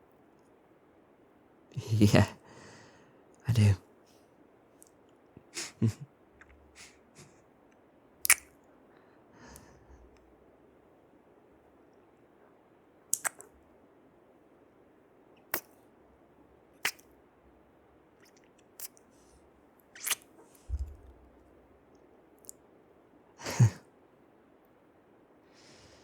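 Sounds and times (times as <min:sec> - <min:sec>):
person breathing: 0:02.4 - 0:03.2, 0:05.6 - 0:05.9, 0:06.7 - 0:07.4, 0:08.9 - 0:10.1, 0:25.5 - 0:26.0
lip smacking kisses: 0:08.3 - 0:08.5, 0:13.2 - 0:13.5, 0:20.0 - 0:21.0.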